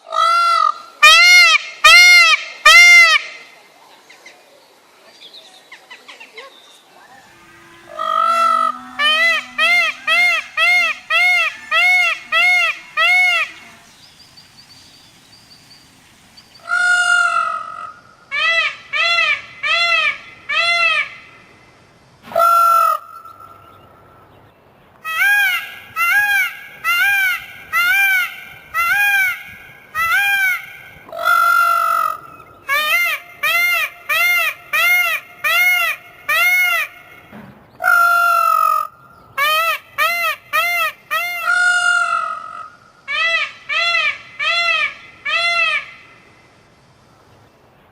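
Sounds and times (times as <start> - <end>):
large bird nasal calls: 7.0 - 15.2.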